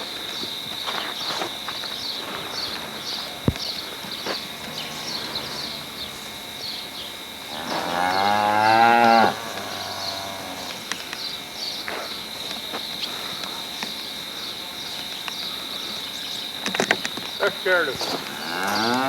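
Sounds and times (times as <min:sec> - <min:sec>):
cow mooing: 0:04.2 - 0:10.8, 0:18.3 - 0:19.0.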